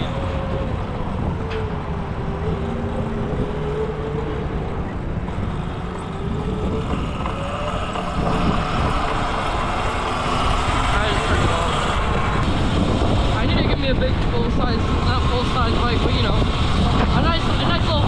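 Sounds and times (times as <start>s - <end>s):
electric motor whining: 0.0s - 13.4s
wind rumble on microphone: 0.0s - 18.0s.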